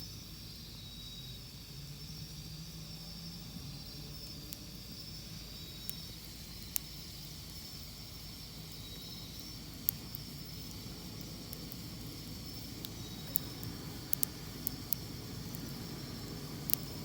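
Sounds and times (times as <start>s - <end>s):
high hiss: 2.4s - 17.0s
burning wood crackling and popping: 9.0s - 17.0s.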